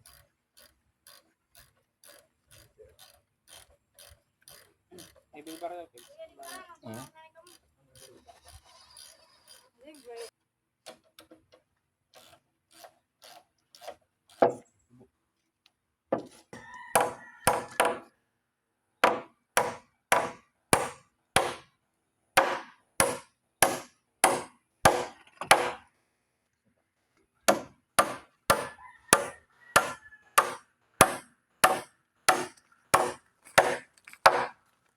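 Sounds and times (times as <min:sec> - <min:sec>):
hammering on wood: 0:16.9 - 0:18.1, 0:19.0 - 0:21.7, 0:22.4 - 0:25.9, 0:27.5 - 0:34.6.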